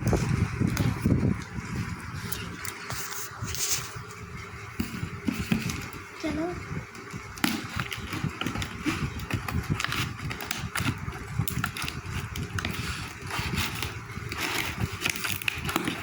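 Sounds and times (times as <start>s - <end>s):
plastic packaging crinkling: 7.0s - 16.0s.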